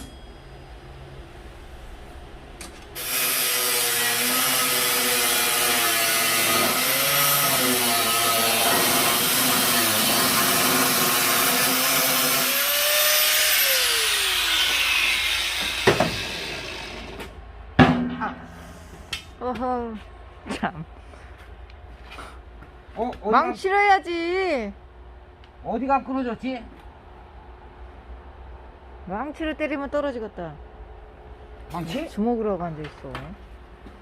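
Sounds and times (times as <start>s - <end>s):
sharp metal knock: 0.0s - 0.5s
angle grinder grinding steel: 3.0s - 17.2s
motor winding down: 6.6s - 17.2s.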